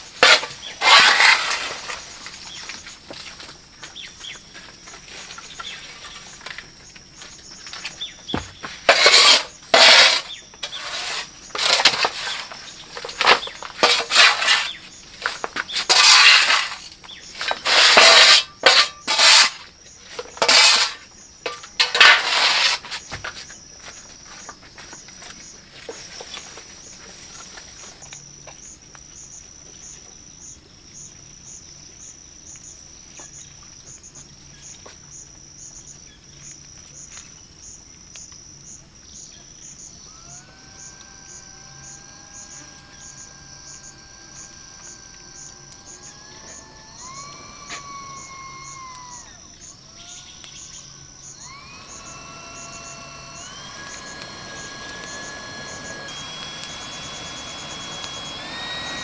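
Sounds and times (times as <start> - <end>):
insects chirping: 0.0 - 59.0
distant engine drone: 39.9 - 59.0.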